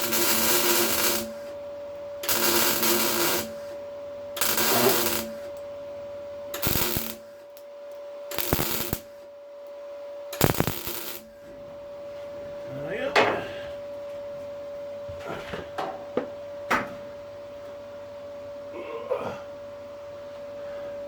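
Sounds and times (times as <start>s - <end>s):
welder crackling and sizzling: 0.0s - 1.6s, 2.2s - 3.8s, 4.4s - 5.6s, 6.5s - 7.7s, 8.3s - 9.2s, 10.4s - 11.4s
faint steady hum: 0.0s - 21.0s.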